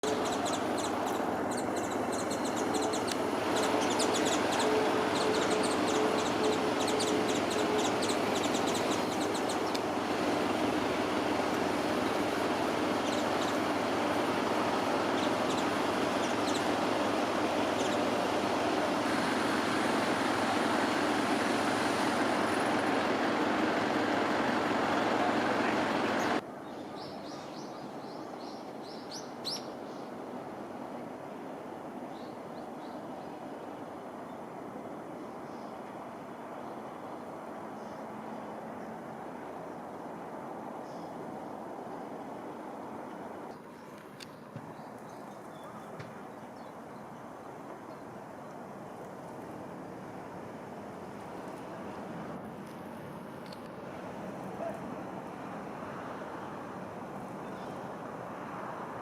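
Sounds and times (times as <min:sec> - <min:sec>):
bird chirping: 0:00.0 - 0:09.8, 0:13.0 - 0:13.6, 0:15.1 - 0:16.8, 0:26.2 - 0:30.1.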